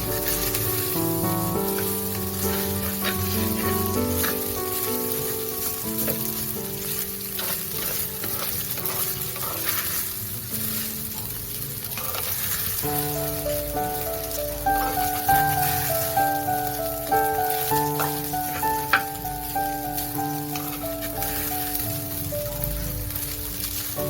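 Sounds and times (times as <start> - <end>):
rice sizzling in a pan: 0.0 - 24.0
soft background music: 0.0 - 24.0
spatula scraping a pan: 0.1 - 12.8, 17.5 - 19.2, 20.2 - 21.8.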